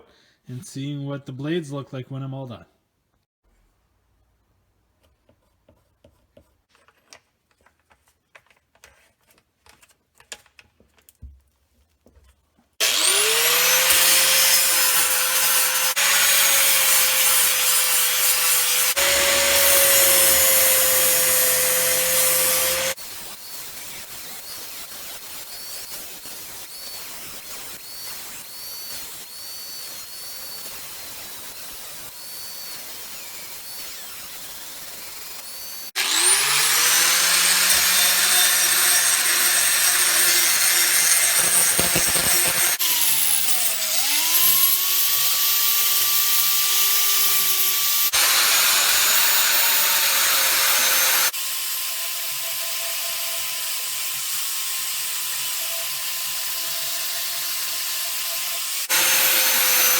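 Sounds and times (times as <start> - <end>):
electric grinder grinding metal: 12.8 - 59.9.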